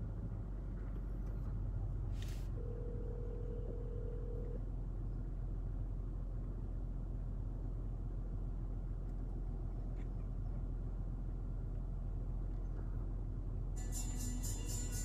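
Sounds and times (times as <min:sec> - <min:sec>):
car driving rumble: 0:00.0 - 0:13.8
steady single tone: 0:02.2 - 0:04.6.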